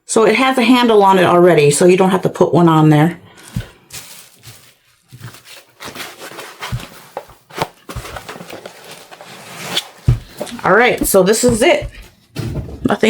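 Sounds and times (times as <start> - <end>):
packaging rustling: 3.4 - 12.4.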